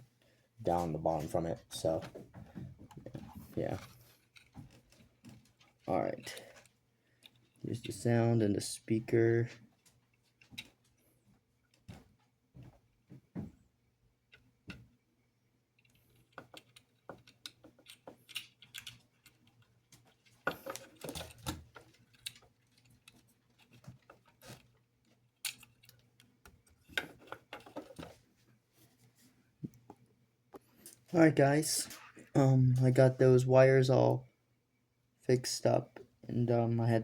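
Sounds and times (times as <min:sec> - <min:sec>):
small plastic parts clicking: 0:15.8 - 0:28.1.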